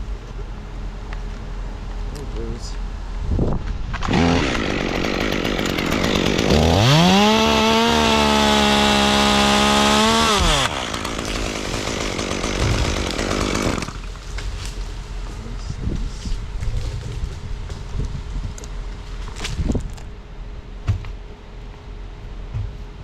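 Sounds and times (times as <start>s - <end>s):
chainsaw engine revving: 4.0s - 14.1s.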